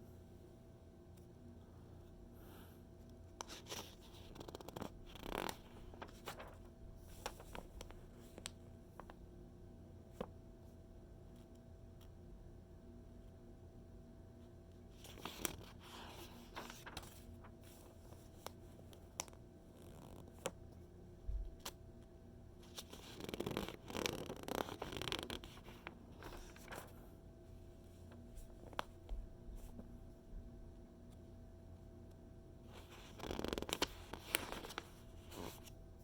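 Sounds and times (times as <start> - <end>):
magazine pages rustling: 3.5 - 9.1, 15.0 - 20.6, 22.6 - 27.0, 32.8 - 35.8.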